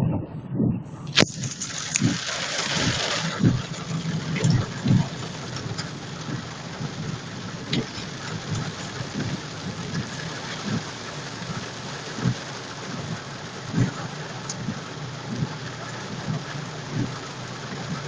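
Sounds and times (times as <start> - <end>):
low thumps: 0.0 - 10.9
vehicle running: 0.0 - 18.0
heavy rain pouring: 1.1 - 18.0.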